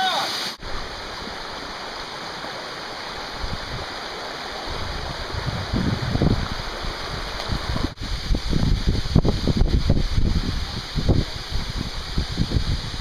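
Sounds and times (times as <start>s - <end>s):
falling water rushing: 0.0s - 13.0s.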